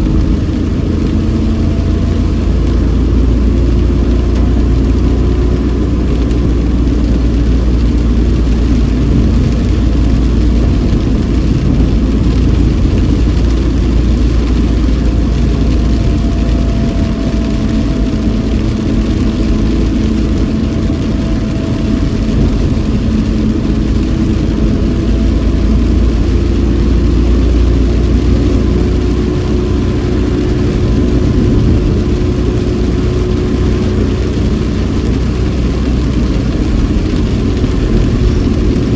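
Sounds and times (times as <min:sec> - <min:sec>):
car engine and road noise: 0:00.0 - 0:38.9
tyres hissing on wet road: 0:00.0 - 0:38.9.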